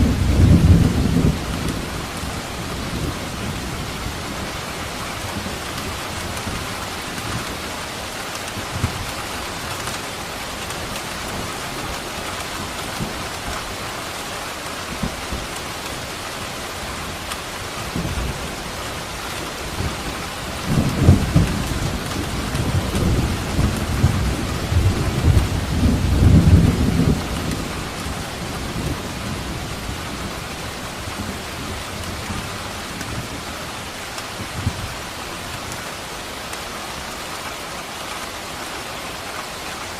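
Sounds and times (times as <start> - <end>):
thunder rumbling: 0.0 - 7.7, 16.8 - 35.8
heavy rain: 0.0 - 39.9.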